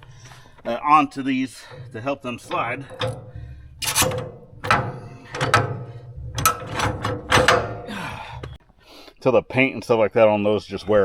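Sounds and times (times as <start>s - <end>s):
steel parts scraping and clanking: 0.0s - 8.6s.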